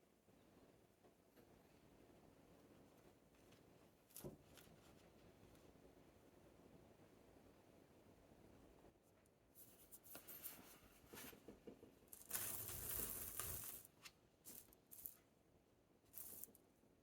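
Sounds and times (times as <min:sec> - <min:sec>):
tearing scrape: 0:12.2 - 0:13.9.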